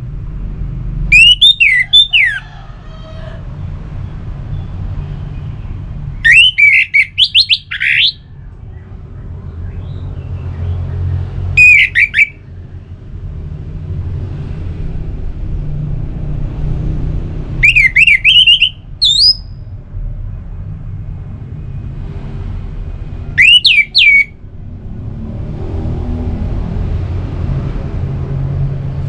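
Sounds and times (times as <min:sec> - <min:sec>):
thrush singing whistled notes: 0:01.1 - 0:02.5, 0:06.1 - 0:08.8, 0:11.5 - 0:12.6, 0:17.6 - 0:19.7, 0:23.3 - 0:24.4.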